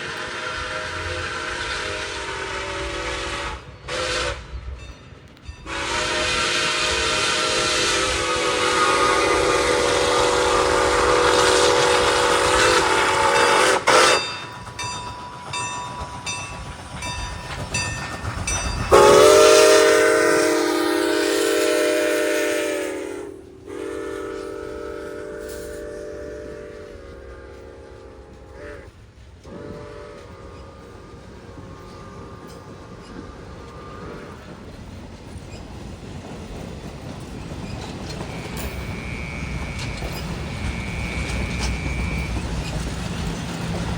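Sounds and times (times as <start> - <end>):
locomotive air horn blasts: 0.0 - 4.6, 5.6 - 14.4, 18.9 - 32.7, 38.8 - 42.7.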